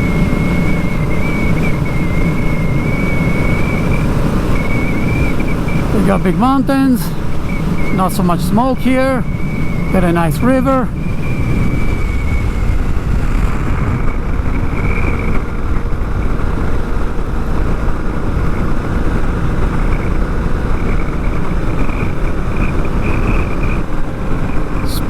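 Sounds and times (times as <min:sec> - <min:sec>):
motorcycle engine cruising: 0:00.0 - 0:25.0
wind and road noise: 0:00.0 - 0:25.0.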